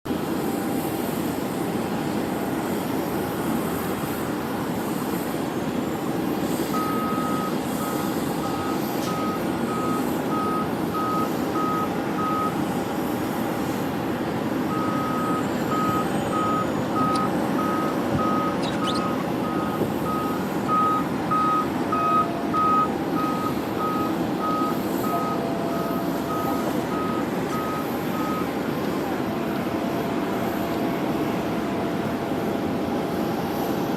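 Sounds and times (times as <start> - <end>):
vehicle reversing alarm beeping: 6.6 - 32.0.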